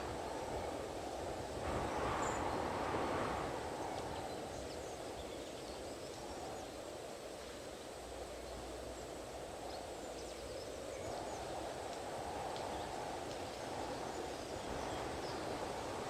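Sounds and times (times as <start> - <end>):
strong wind blowing: 0.0 - 7.1, 11.0 - 16.0.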